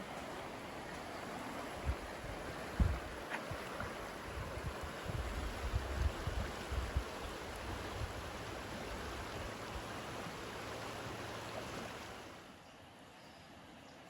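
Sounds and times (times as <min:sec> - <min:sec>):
stream water running: 0:00.0 - 0:14.0
wind rumbling on microphone: 0:01.7 - 0:10.0.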